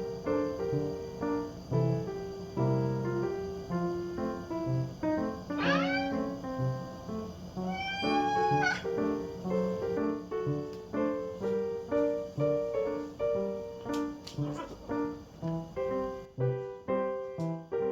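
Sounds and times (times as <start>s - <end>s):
light piano music: 0.0s - 17.9s
cat meowing: 5.5s - 6.4s, 7.6s - 9.0s, 14.4s - 14.9s.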